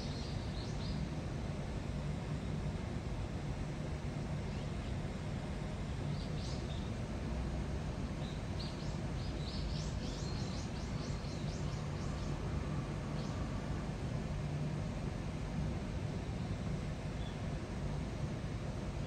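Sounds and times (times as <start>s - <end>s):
steady low hum: 0.0s - 19.0s
small bird chirping: 6.1s - 6.9s, 8.2s - 12.4s.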